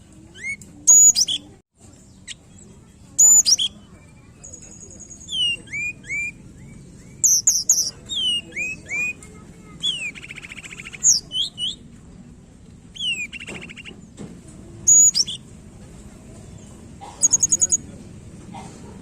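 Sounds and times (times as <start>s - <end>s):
songbird whistling: 0.2s - 1.6s, 3.2s - 11.9s, 12.9s - 14.0s, 14.9s - 15.5s, 17.2s - 17.8s.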